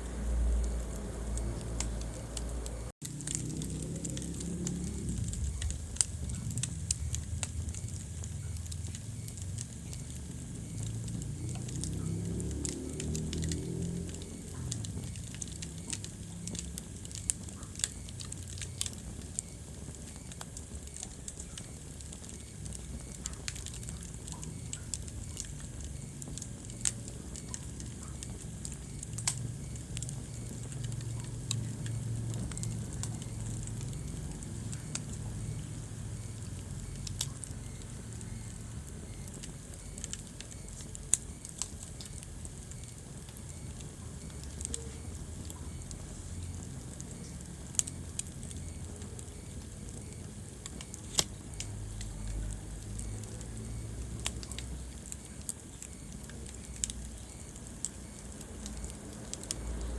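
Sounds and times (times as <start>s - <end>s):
fire rumbling and crackling: 0.0s - 59.9s
sharp pops from burning logs: 0.0s - 59.9s.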